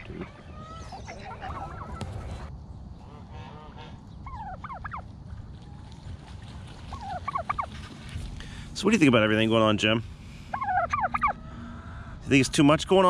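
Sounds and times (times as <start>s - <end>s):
poultry calling: 0.0s - 5.0s, 6.9s - 7.8s, 10.5s - 12.4s.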